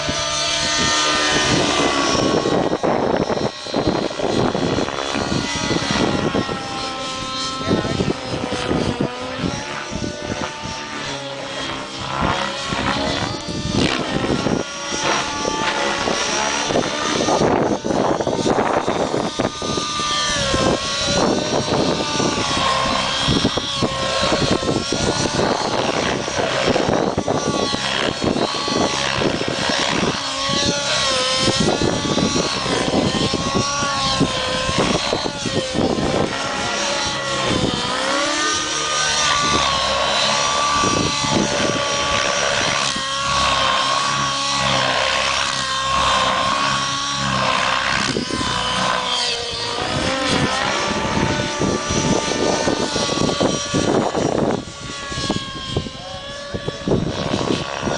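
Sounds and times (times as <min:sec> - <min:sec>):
model helicopter engine and rotor whine: 0:00.0 - 0:57.9.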